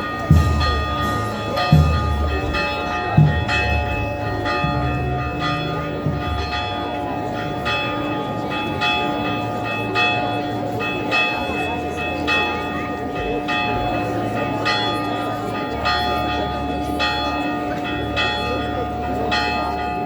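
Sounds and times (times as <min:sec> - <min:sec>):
church bells ringing: 0:00.0 - 0:20.0
heavy low thuds: 0:00.3 - 0:06.8.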